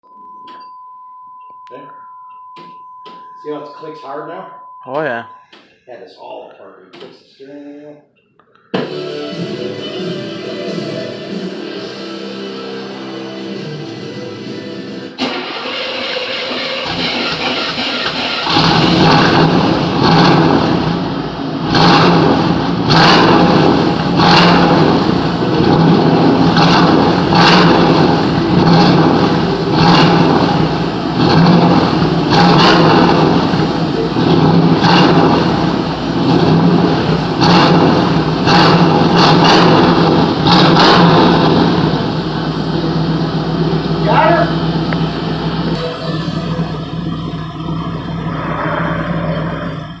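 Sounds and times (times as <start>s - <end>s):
exhaust crackle: 15.2s - 50.0s
car engine exhaust pulsing: 16.7s - 50.0s.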